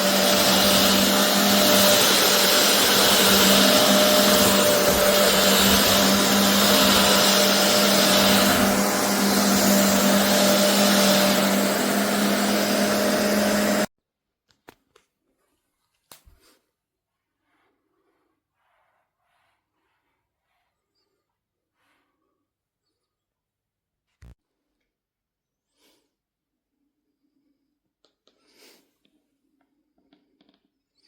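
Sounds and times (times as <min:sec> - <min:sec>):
carpet cleaner suction motor: 0:00.0 - 0:13.9.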